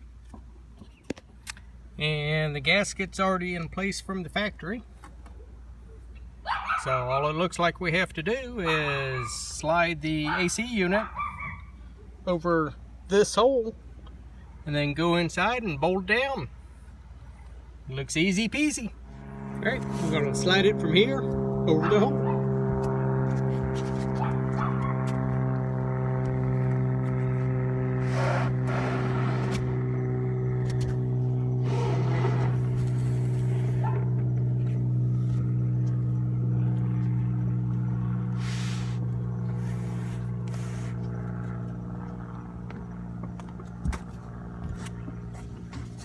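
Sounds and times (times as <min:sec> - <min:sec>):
low engine-like hum: 0:00.0 - 0:46.0
air conditioner scraping on roof: 0:19.2 - 0:21.1, 0:21.7 - 0:34.2, 0:38.3 - 0:41.9, 0:43.7 - 0:46.0.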